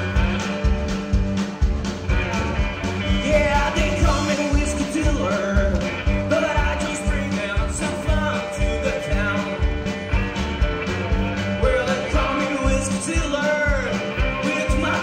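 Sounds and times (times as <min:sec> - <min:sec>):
bass line: 0:00.0 - 0:15.0
drum beat: 0:00.0 - 0:15.0
guitar: 0:00.0 - 0:15.0
wavering sung or lead melody: 0:02.3 - 0:10.3, 0:11.0 - 0:15.0.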